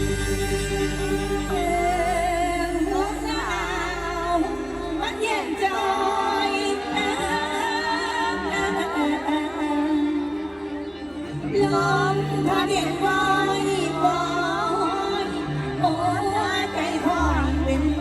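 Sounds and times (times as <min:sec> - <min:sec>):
band accompaniment: 0:00.0 - 0:03.8.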